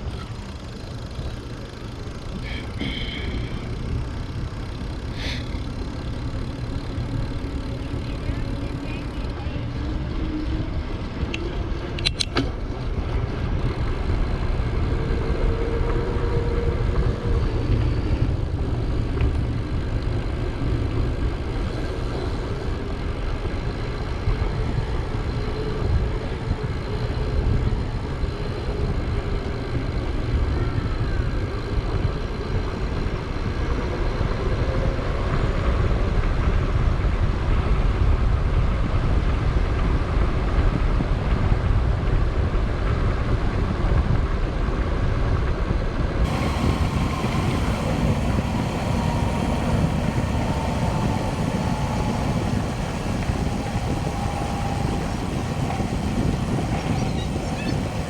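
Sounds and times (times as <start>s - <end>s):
bicycle rolling on paved road: 0.0s - 58.0s
wind rumbling on microphone: 0.0s - 58.0s
sharp click: 12.0s - 12.5s.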